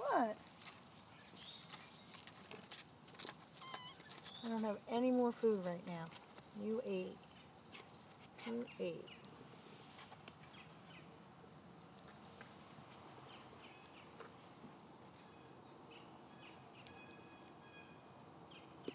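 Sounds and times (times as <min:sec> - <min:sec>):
faint outdoor ambience: 0:00.0 - 0:18.9
distant high bird chirps: 0:03.6 - 0:04.8, 0:15.2 - 0:18.9.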